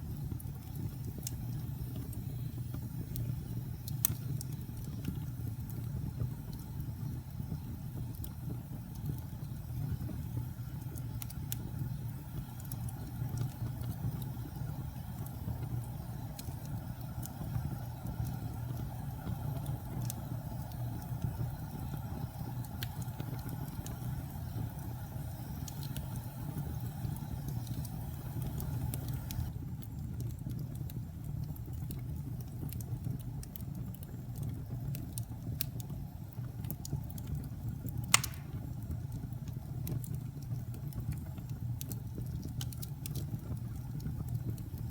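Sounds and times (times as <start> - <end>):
fire crackles and pops: 0.0 - 44.9
wood fire rumbling: 0.0 - 44.9.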